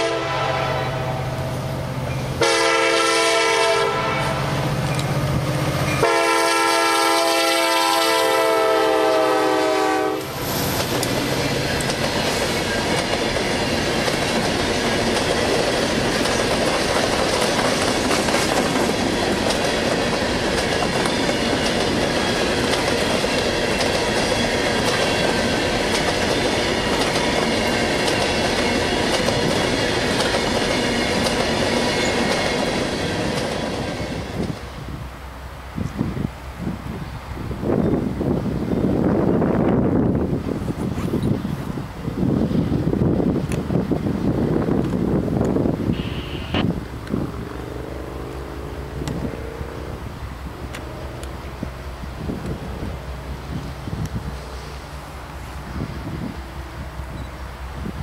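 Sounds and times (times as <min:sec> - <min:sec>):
locomotive air horn: 0:00.0 - 0:01.4, 0:02.4 - 0:04.7, 0:06.0 - 0:10.4, 0:45.9 - 0:46.8
freight train rumble: 0:00.0 - 0:58.0
wheels clacking over rail joints: 0:10.3 - 0:34.6.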